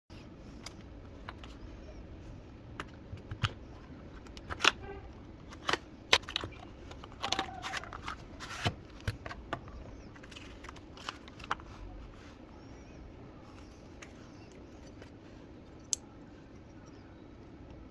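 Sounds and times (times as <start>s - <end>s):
packaging clicks and rustles: 2.7s - 12.4s.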